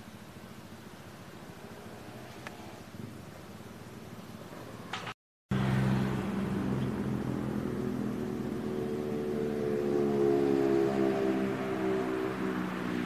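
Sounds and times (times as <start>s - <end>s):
faint background hiss: 0.0s - 5.1s
road noise: 0.0s - 13.0s
vehicle engine humming: 0.0s - 13.0s.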